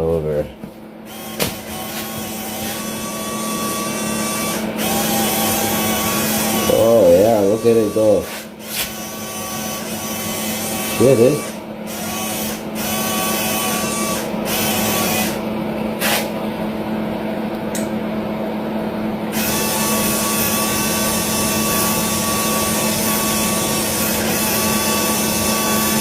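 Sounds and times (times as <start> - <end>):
small electric motor whining: 1.1 - 15.4, 19.3 - 26.0.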